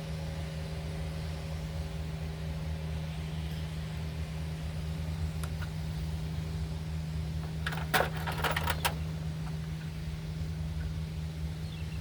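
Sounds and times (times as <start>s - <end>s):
steady low hum: 0.0s - 12.0s
small hard parts clattering: 7.5s - 9.0s.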